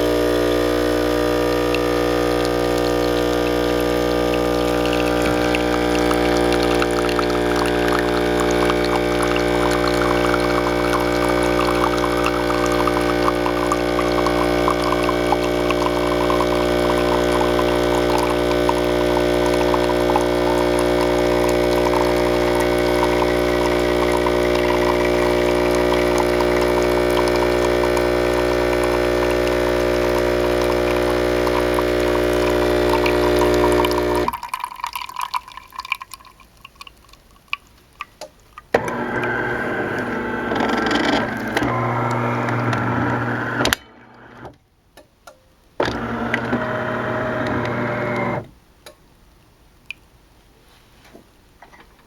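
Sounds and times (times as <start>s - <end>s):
espresso machine pump humming: 0.0s - 34.5s, 38.8s - 44.4s, 45.8s - 48.5s
coffee pouring into cup: 0.8s - 43.6s, 45.8s - 48.4s
liquid dripping: 1.4s - 38.7s.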